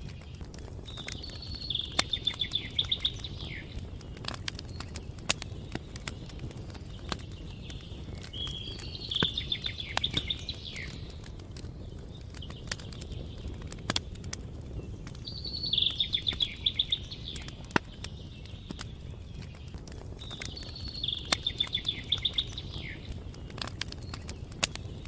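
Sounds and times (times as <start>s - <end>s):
campfire crackling and popping: 0.0s - 25.0s
songbird singing: 0.0s - 25.0s.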